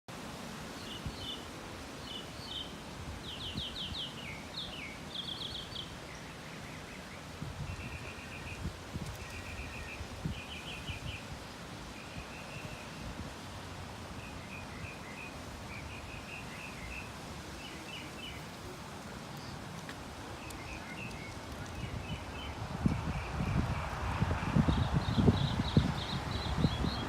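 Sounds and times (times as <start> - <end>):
wind rustling trees: 0.1 - 27.0
wind buffeting microphone: 7.2 - 14.2, 17.2 - 27.0.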